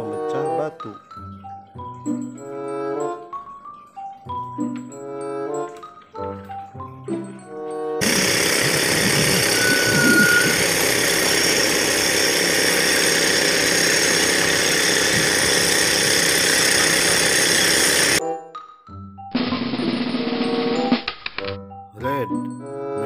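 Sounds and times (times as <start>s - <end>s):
snare drum roll: 19.4s - 21.2s.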